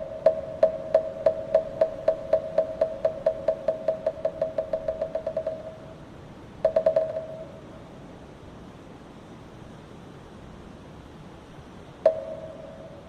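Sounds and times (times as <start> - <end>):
wooden temple block knocks: 0.3 - 5.8, 6.7 - 7.4.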